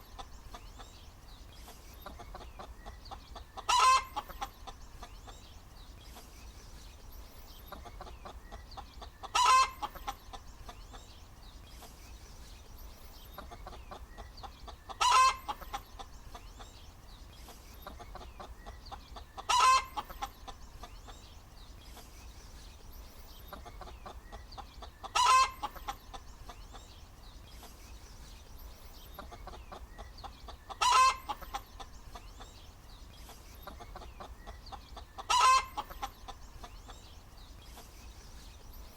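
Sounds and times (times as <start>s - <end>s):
soft clucking: 1.6s - 5.4s, 13.3s - 16.8s, 23.5s - 26.9s, 29.0s - 32.6s
hen cackling: 2.1s - 4.8s, 9.0s - 10.4s, 13.5s - 16.1s, 18.0s - 20.6s, 23.5s - 26.2s, 29.2s - 31.9s, 33.7s - 36.7s.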